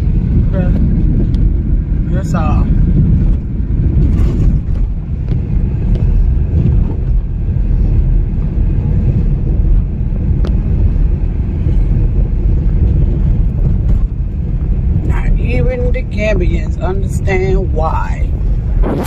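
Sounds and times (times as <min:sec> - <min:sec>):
car driving on dirt road: 0:00.0 - 0:19.0.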